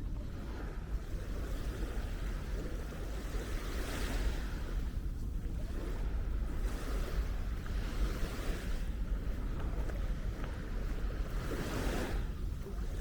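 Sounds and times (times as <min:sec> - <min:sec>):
small waves washing onto sand: 0:00.0 - 0:13.0
wind buffeting microphone: 0:00.0 - 0:13.0.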